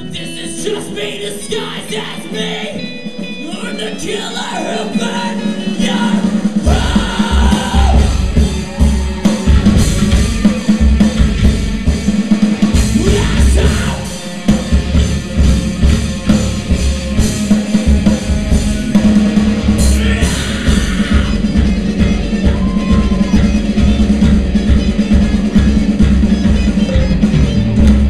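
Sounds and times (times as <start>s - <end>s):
person singing: 0.0s - 9.9s, 12.8s - 14.3s, 19.7s - 28.0s
live rock band playing: 0.0s - 28.0s.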